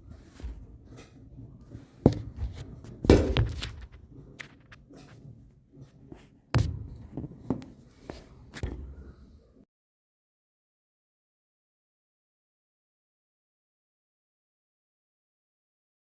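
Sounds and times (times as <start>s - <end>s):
objects knocking and clunking: 0.0s - 9.3s.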